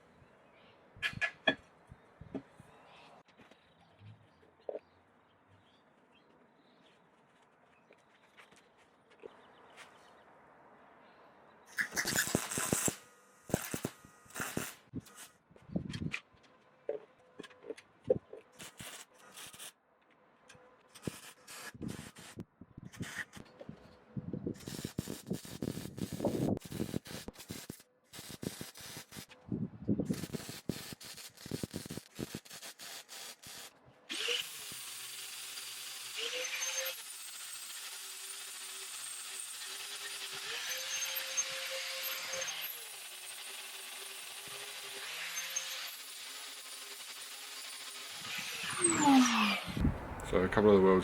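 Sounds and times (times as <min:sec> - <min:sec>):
welding arc crackling: 0:11.7 - 0:15.3, 0:18.6 - 0:19.7, 0:20.9 - 0:22.4, 0:24.6 - 0:29.3, 0:30.1 - 0:33.7
power tool running: 0:12.0 - 0:15.3.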